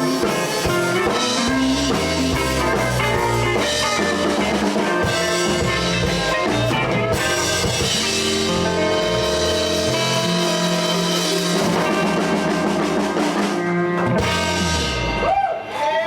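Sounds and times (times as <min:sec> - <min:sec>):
live blues band playing: 0:00.0 - 0:15.8.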